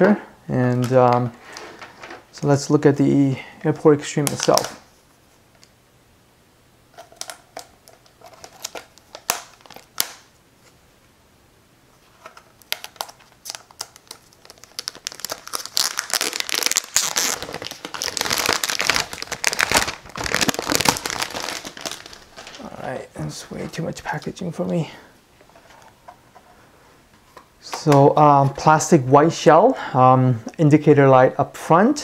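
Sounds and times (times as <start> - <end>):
plastic wrapping crinkling: 4.0 - 4.9, 6.9 - 10.3, 12.0 - 24.8.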